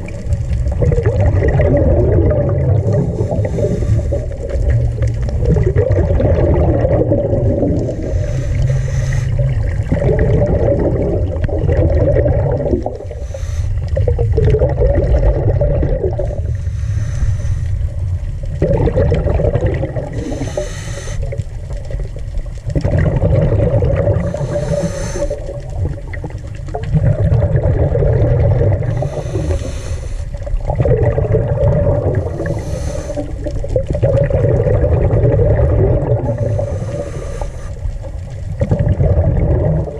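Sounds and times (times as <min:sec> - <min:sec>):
underwater exhaled air bubbling: 0:00.0 - 0:39.9
regulator breath hissing: 0:02.9 - 0:04.5, 0:07.8 - 0:09.6, 0:13.0 - 0:14.0, 0:16.2 - 0:18.1, 0:20.1 - 0:21.4, 0:24.2 - 0:25.6, 0:28.9 - 0:30.4, 0:32.2 - 0:33.5, 0:36.3 - 0:37.9.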